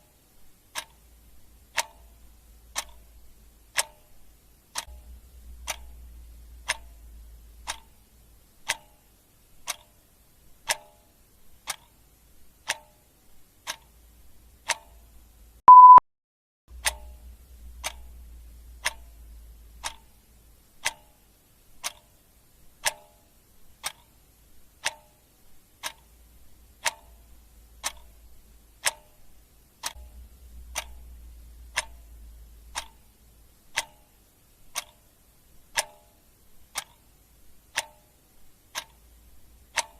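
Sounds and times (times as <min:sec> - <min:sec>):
clock ticking: 0:00.0 - 0:16.0, 0:16.7 - 0:39.9
short beep: 0:15.7 - 0:16.0.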